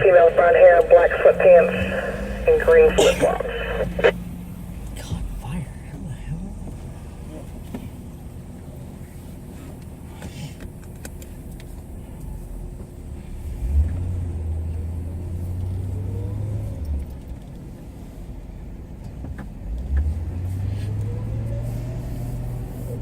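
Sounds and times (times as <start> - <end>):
faint rising whine: 0.0 - 4.2
car engine rumble: 0.0 - 23.0.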